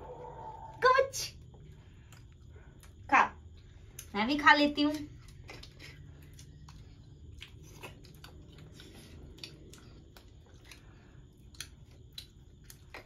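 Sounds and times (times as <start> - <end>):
low room rumble: 0.0 - 13.0
people chewing: 1.5 - 3.0, 4.9 - 13.0.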